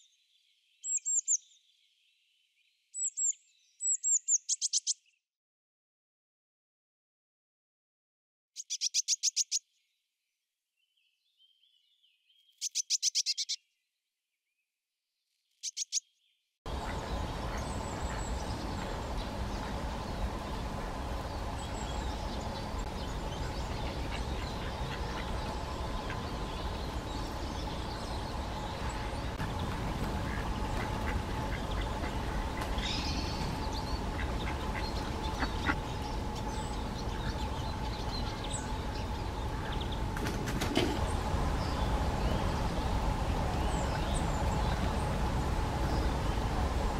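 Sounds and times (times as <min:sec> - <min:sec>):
finch trilling song: 0:08.6 - 0:09.7, 0:11.4 - 0:13.7, 0:15.5 - 0:40.1
faint bird chirps: 0:10.8 - 0:13.8
background hiss and hum: 0:16.7 - 0:46.9.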